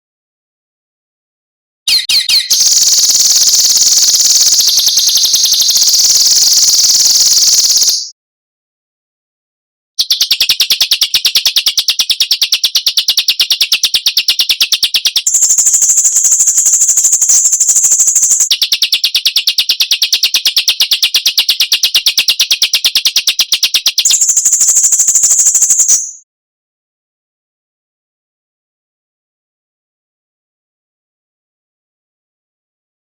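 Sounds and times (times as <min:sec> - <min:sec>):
rapid rattling bird call: 0:01.9 - 0:08.1, 0:10.0 - 0:26.2.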